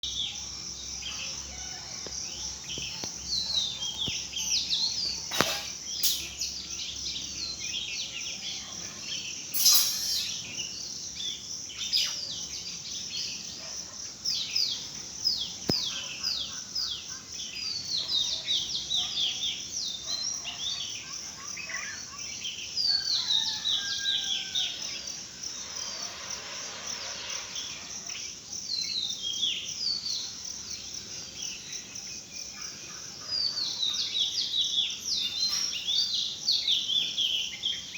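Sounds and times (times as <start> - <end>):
small birds chirping: 0.0 - 37.9
high insect buzz: 0.1 - 13.6, 23.2 - 32.2.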